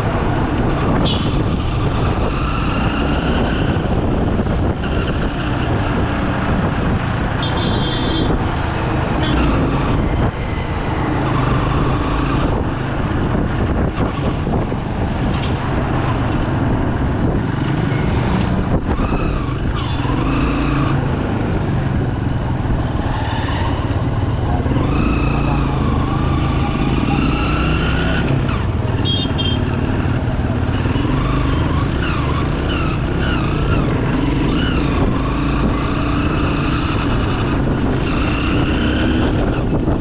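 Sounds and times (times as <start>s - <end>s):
motorcycle engine running: 23.8s - 35.7s.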